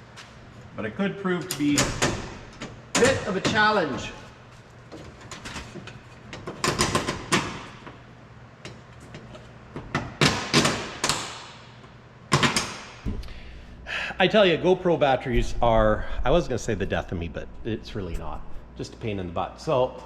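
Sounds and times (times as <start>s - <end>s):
tools and metal knocking and clanking: 4.9s - 8.0s.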